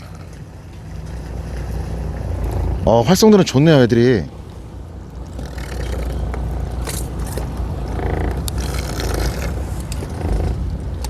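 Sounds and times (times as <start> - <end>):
boat engine rumbling: 0.0 - 11.0
tackle clicks and scrapes: 5.2 - 11.0.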